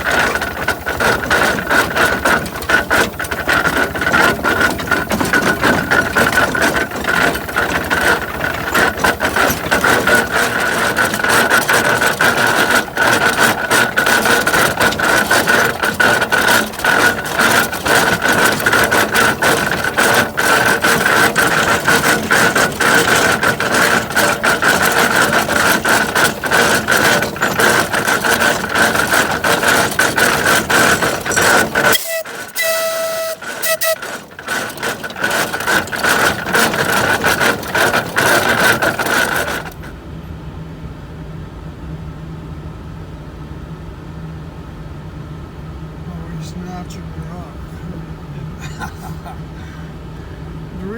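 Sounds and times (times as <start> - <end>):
steam tractor clattering: 0.0 - 40.0.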